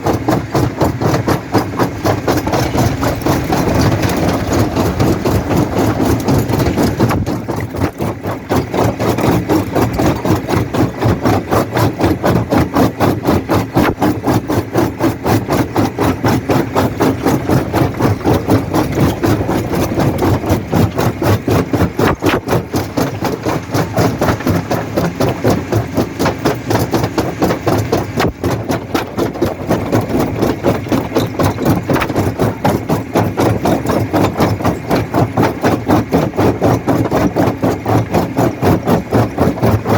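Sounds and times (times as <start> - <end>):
rock crusher pulsing: 0.0 - 39.9.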